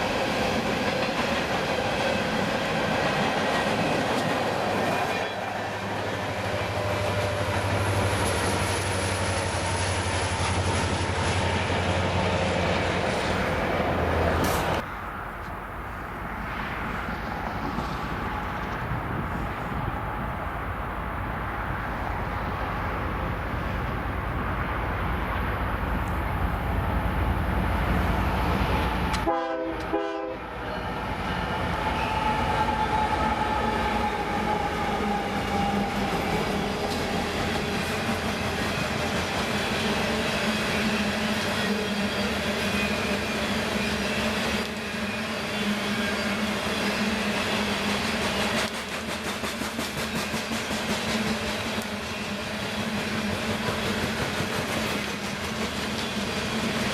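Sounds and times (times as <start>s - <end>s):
freight train rumbling past: 0.0s - 56.9s
locomotive horn chord: 29.2s - 30.5s.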